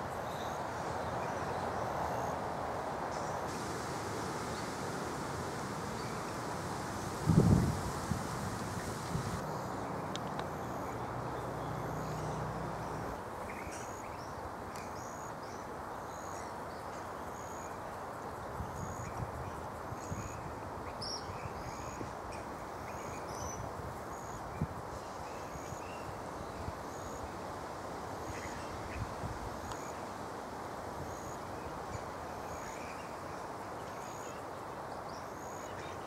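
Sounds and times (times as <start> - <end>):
outdoor background noise: 0.0 - 36.0
wind rumble on microphone: 3.5 - 9.4, 23.3 - 24.9.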